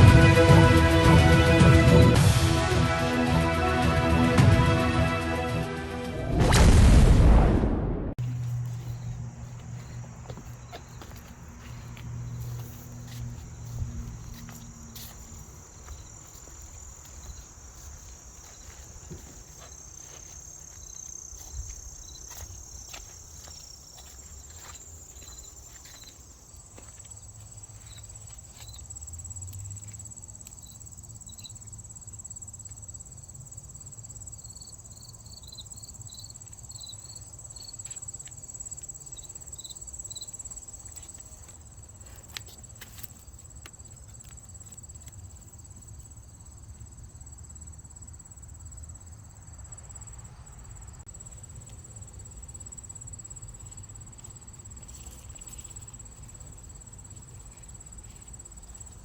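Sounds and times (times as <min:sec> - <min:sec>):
low rumble: 0:06.0 - 0:09.5
insects trilling: 0:08.2 - 0:59.0.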